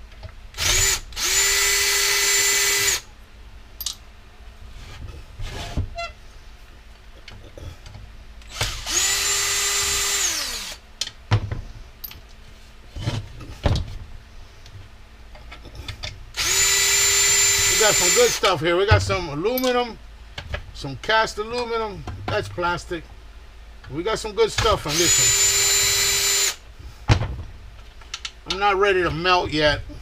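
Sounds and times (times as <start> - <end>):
power drill motor whine: 0.6 - 3.1, 8.5 - 10.8, 16.4 - 18.5, 24.9 - 26.6.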